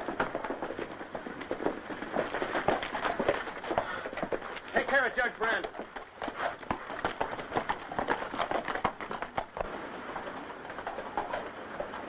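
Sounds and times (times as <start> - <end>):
faint steady hiss: 9.0 - 12.0.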